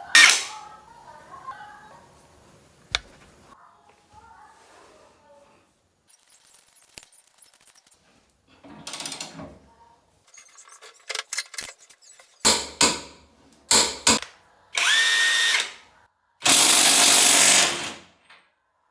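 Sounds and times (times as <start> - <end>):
impact wrench bursts: 14.8 - 15.8, 16.4 - 18.0.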